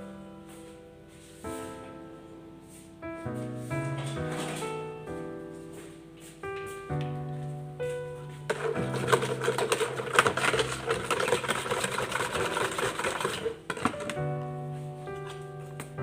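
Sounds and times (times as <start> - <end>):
background music: 0.0 - 16.0
utensil stirring in a container: 8.5 - 14.2.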